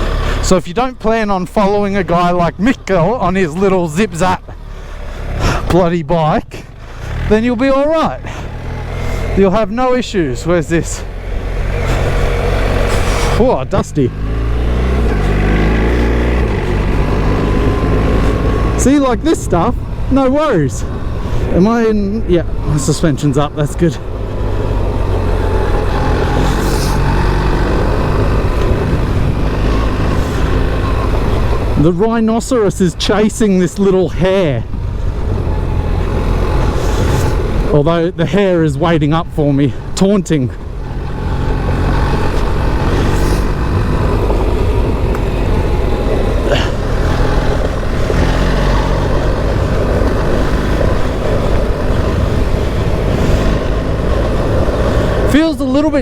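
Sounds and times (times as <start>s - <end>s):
motorcycle engine running: 0.0s - 56.0s
wind: 0.0s - 56.0s
tyre noise on dirt: 6.8s - 56.0s
wind noise on microphone: 26.5s - 31.8s, 41.7s - 55.3s.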